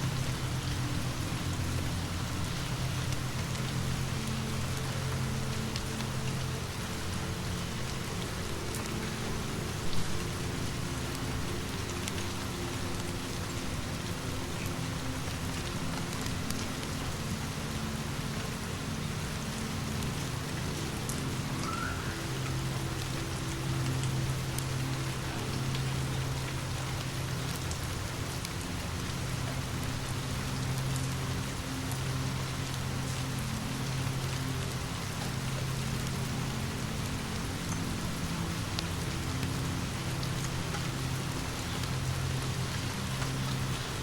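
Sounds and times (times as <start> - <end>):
steady rain falling: 0.0 - 44.0.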